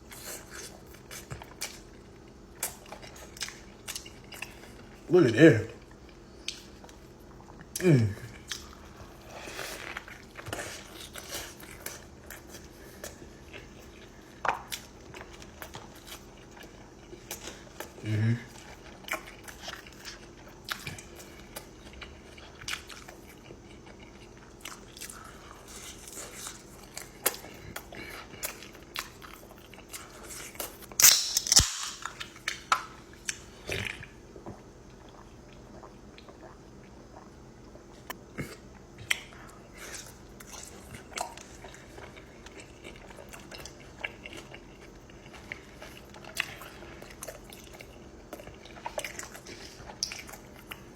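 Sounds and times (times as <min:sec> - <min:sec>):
chewing and biting food: 0:00.0 - 0:05.1, 0:05.8 - 0:50.9
crunchy bite: 0:28.4 - 0:34.2.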